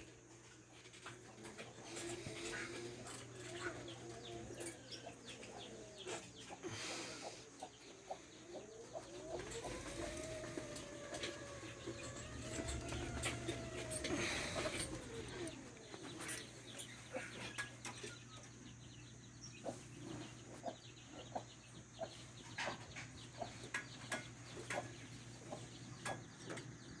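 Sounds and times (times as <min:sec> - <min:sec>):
chickens clucking: 0:00.0 - 0:27.0
gliding chicken call: 0:08.5 - 0:15.7.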